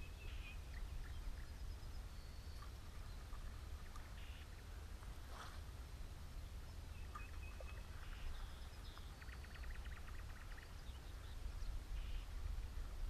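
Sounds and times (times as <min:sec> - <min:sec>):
small birds calling: 0:07.0 - 0:12.4.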